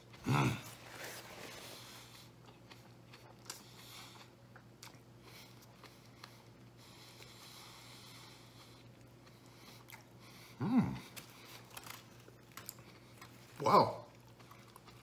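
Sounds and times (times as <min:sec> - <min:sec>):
faint low hum: 0:00.0 - 0:15.0
man chewing food: 0:00.0 - 0:15.0.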